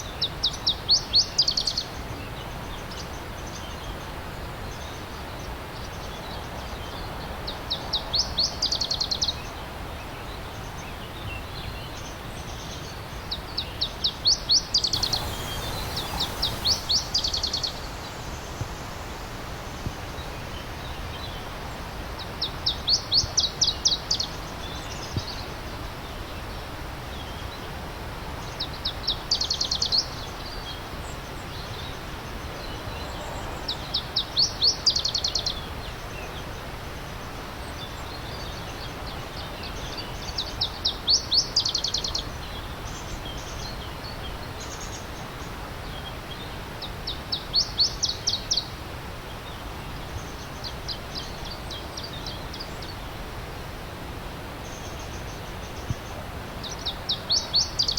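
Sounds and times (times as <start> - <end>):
songbird rapid high notes: 14.8 - 19.4
stream rushing: 14.8 - 22.5.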